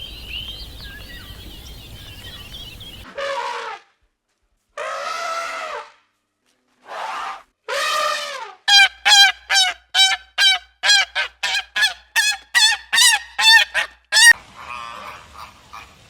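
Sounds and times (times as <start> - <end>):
goose honking: 8.7 - 15.8.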